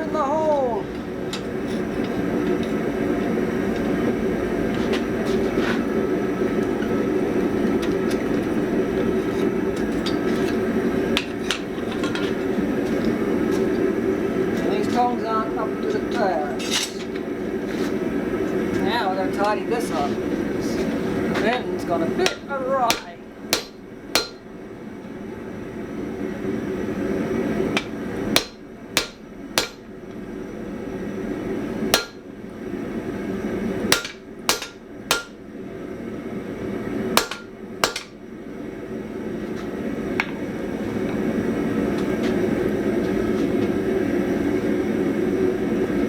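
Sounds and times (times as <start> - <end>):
steady rushing roar: 0.0 - 16.1, 17.1 - 46.0
hammer striking steel on anvil: 22.2 - 24.5, 27.8 - 29.9, 32.0 - 32.3, 33.9 - 35.4, 37.2 - 38.2.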